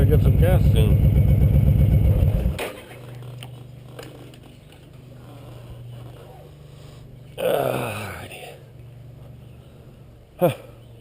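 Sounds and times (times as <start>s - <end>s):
motorcycle engine running: 0.0s - 2.6s.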